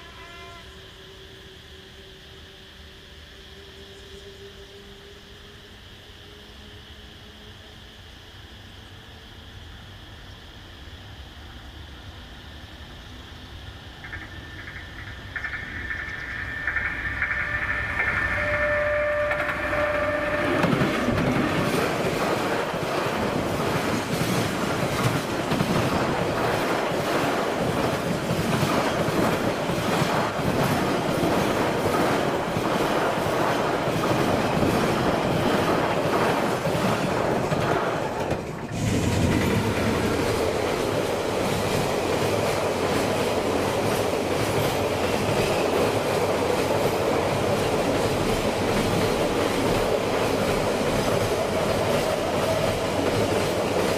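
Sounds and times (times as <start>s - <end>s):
diesel locomotive horn: 0.0s - 2.6s, 3.2s - 7.7s, 17.2s - 21.5s
wheels clicking over rail joints: 14.0s - 53.9s.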